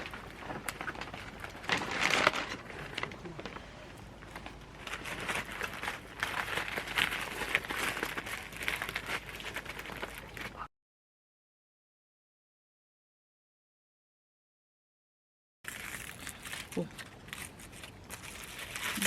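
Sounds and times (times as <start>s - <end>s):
crinkling and crackling: 0.0s - 10.7s, 15.7s - 19.0s.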